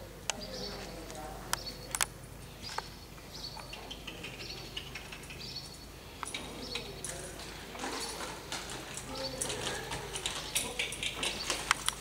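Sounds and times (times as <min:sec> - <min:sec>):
small birds chirping: 0:00.2 - 0:12.0.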